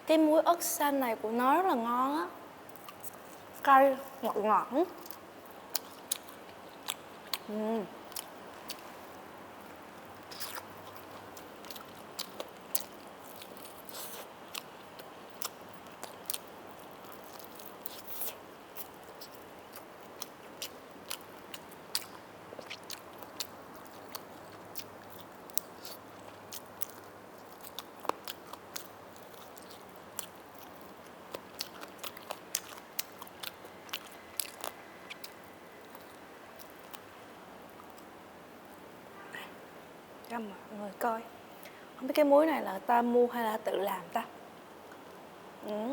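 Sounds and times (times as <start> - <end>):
person chewing crunchy chicken: 5.0 - 7.5, 10.2 - 37.1.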